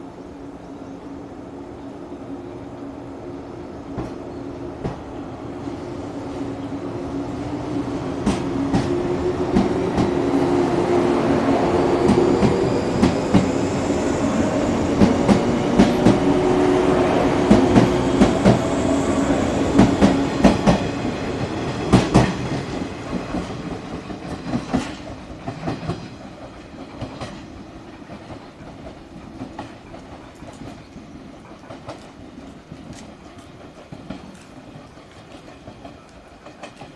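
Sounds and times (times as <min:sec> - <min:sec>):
wheels clacking over rail joints: 0:19.6 - 0:36.9.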